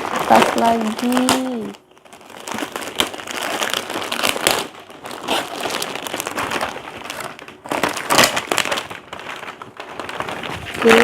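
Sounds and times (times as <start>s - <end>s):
gift wrapping crinkling and rustling: 0.0s - 11.0s.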